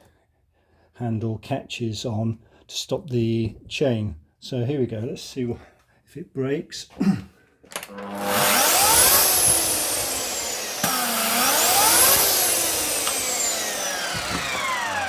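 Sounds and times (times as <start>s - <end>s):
click: 7.7s - 8.1s, 10.8s - 11.1s, 12.9s - 13.3s
electric chainsaw whining: 7.7s - 15.0s.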